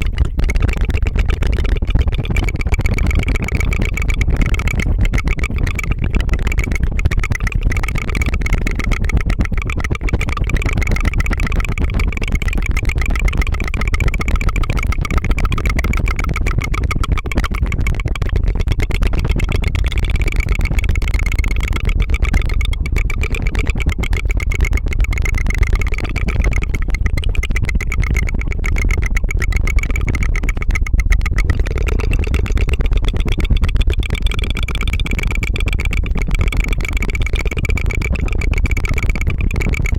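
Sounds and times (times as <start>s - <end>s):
tongue fluttering trill: 0.0s - 39.9s.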